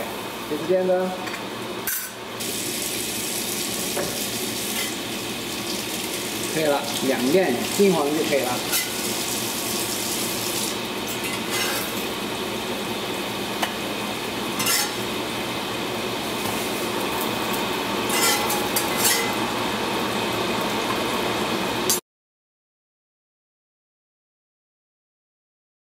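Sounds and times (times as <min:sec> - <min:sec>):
pancakes sizzling in oil: 0:02.2 - 0:12.6.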